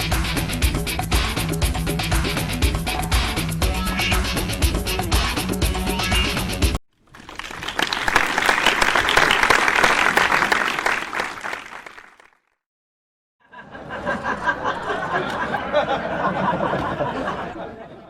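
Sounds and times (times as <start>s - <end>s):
crowd applauding: 7.0s - 12.5s.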